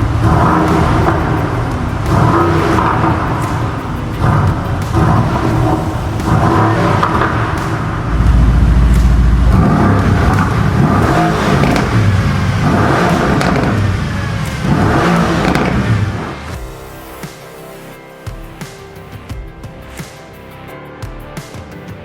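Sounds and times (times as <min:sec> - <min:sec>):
car exhaust revving: 0:00.0 - 0:16.6.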